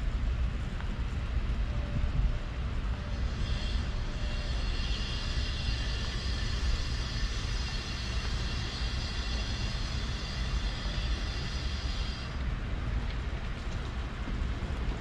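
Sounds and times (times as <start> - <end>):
train rolling past: 0.0 - 15.0
thin high squeal: 3.1 - 12.3.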